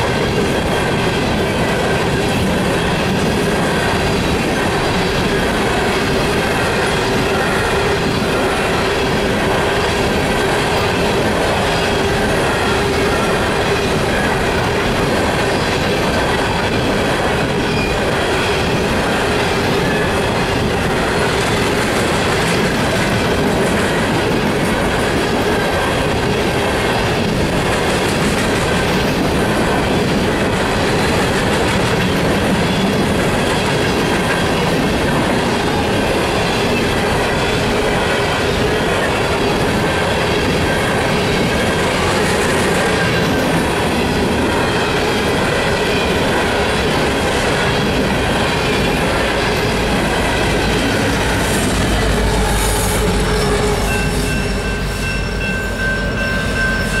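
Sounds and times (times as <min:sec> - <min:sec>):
train wheels clattering over rails: 0:00.0 - 0:57.0
deep locomotive rumble: 0:46.4 - 0:56.8
level-crossing bell ringing: 0:53.0 - 0:57.0.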